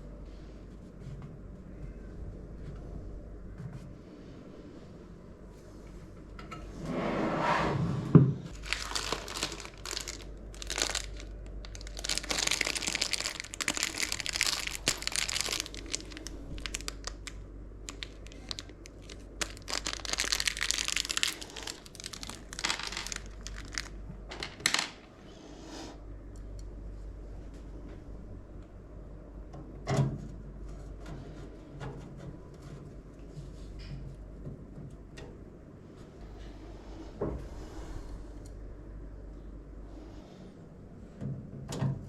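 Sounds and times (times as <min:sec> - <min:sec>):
plastic packaging crinkling: 0:08.5 - 0:25.0.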